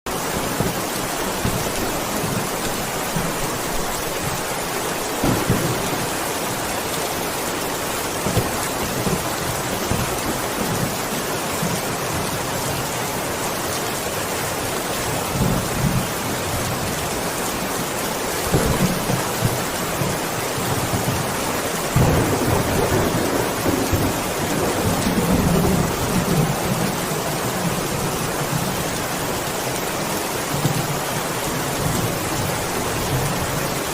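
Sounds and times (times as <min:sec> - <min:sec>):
thunder rumbling: 0:00.1 - 0:12.3, 0:18.4 - 0:28.8
heavy rain pouring: 0:00.1 - 0:33.9.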